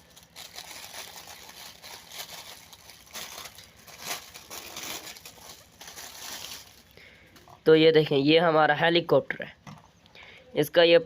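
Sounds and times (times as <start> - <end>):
plastic packaging rustling: 0.0 - 7.5.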